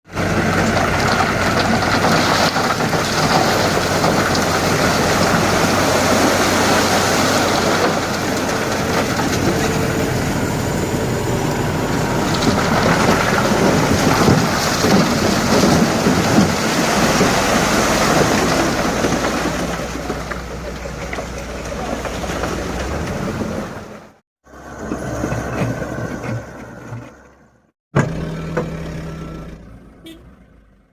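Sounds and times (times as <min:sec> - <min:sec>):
truck engine running: 0:00.1 - 0:30.9
sand pouring from truck bed: 0:00.2 - 0:09.5, 0:12.2 - 0:20.1.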